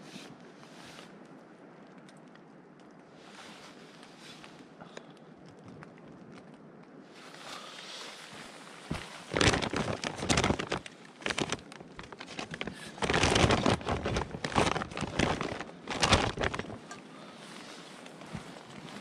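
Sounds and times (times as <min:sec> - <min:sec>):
material rustling and crinkling: 0:03.1 - 0:19.0.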